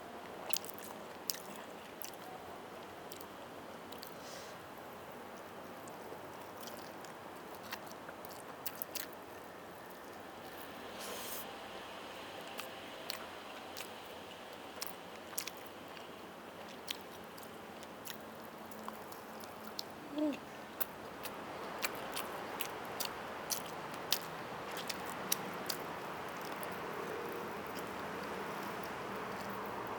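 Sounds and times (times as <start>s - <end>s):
soft steady hiss: 0.0s - 29.9s
close chewing and biting: 0.4s - 2.4s, 5.8s - 10.8s, 12.2s - 29.9s
wet mouth clicks and smacks: 20.8s - 29.6s.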